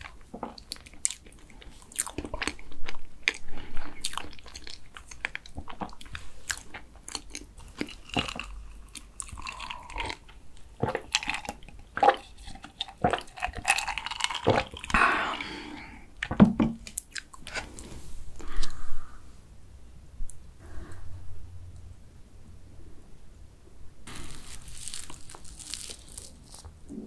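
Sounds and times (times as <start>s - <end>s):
chewing cake: 0.0s - 15.5s.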